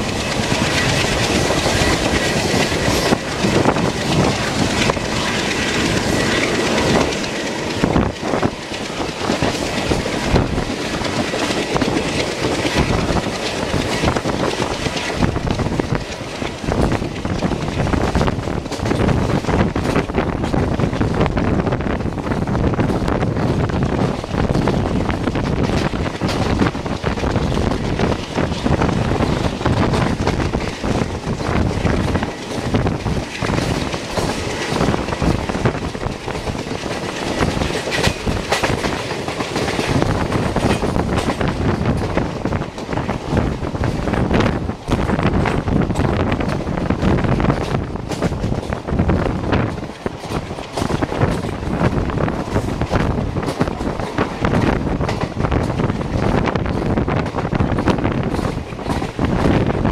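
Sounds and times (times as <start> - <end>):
train rail rumble: 0.0 - 59.9
wheels clattering over rail joints: 0.0 - 59.9.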